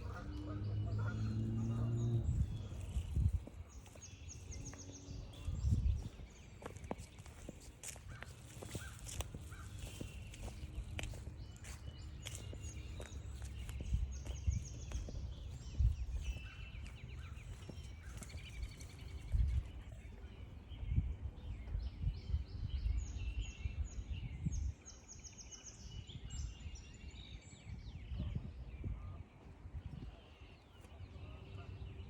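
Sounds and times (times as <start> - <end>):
songbirds singing and chirping: 0.0 - 32.0
footsteps on a trail: 1.4 - 20.1.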